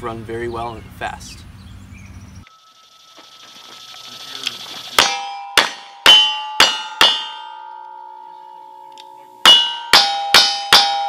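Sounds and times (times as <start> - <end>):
steel target ringing: 2.5 - 11.0.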